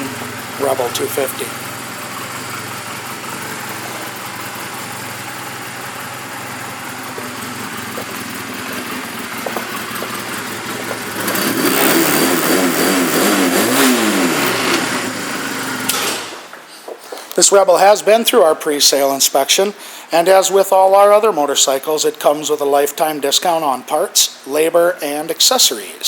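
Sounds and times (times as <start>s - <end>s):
motorcycle engine idling: 0.0s - 12.1s
motorcycle engine revving: 0.0s - 16.5s.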